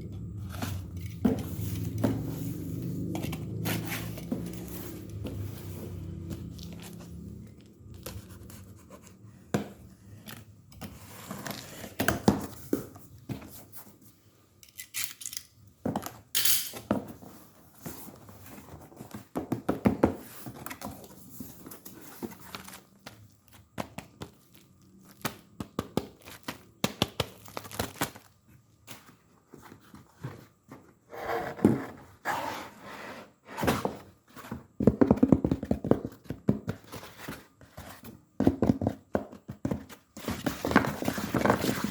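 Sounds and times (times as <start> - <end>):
packaging rustling and tearing: 27.3 - 28.4.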